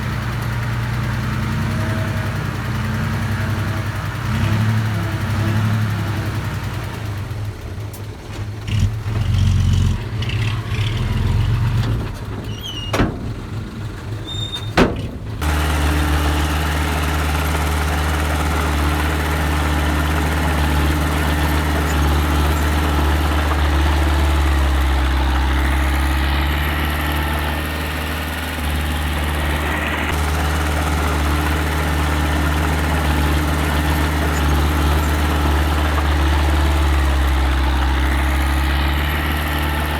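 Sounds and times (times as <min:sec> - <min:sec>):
earthmoving machine engine: 0:15.3 - 0:39.9.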